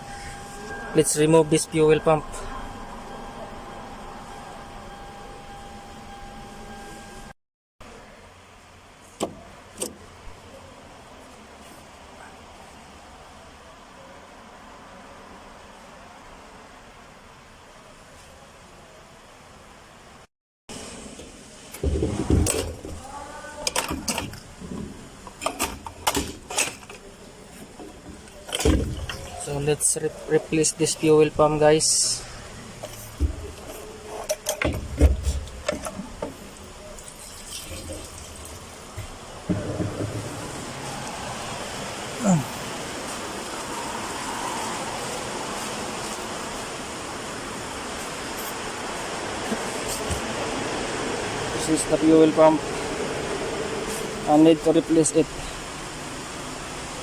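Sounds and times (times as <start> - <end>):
steady hiss: 20.7 - 57.0
low thuds: 39.0 - 40.9.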